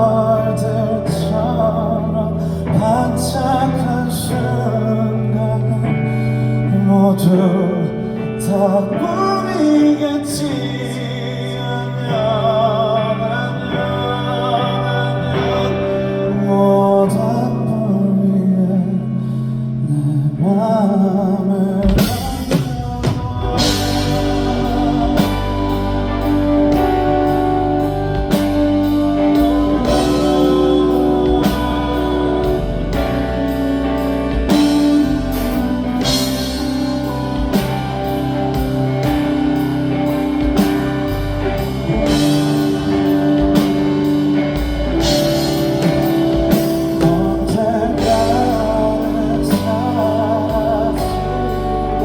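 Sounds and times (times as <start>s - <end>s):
guitar: 0.0s - 52.0s
person singing: 0.0s - 52.0s
drum kit beat: 21.8s - 52.0s.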